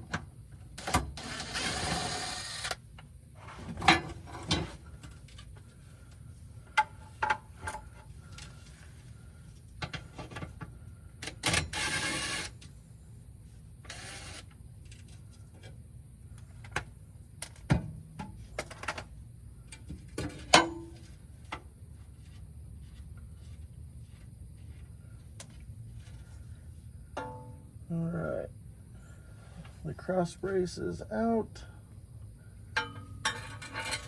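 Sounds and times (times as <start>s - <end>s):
metal clinks of bolts and tools: 32.8s - 34.0s.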